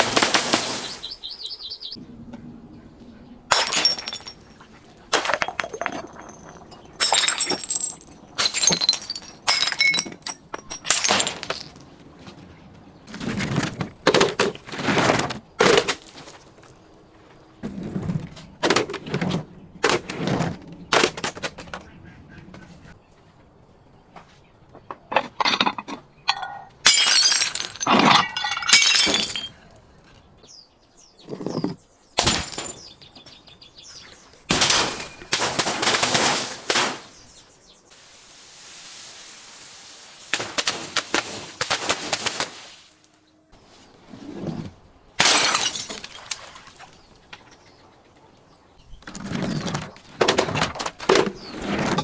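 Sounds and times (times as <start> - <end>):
glass smashing and crunching: 3.5 - 11.8, 26.4 - 29.6, 32.2 - 32.9, 34.5 - 37.2, 45.2 - 46.6
steady hiss: 37.8 - 41.0.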